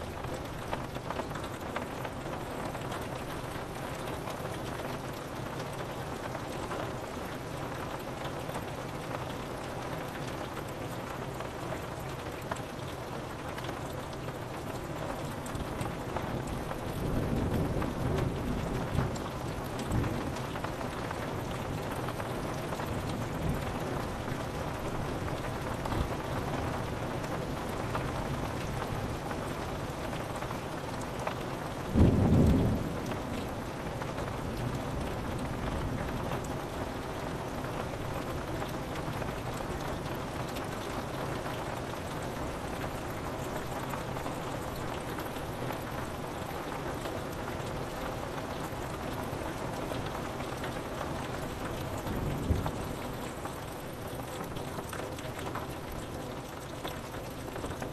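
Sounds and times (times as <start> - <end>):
rain on a window: 0.0 - 57.9
thunder rumble: 51.9 - 53.7.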